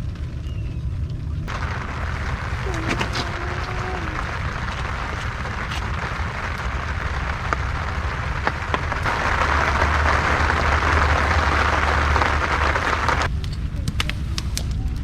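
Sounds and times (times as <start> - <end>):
rain falling: 1.4 - 13.3.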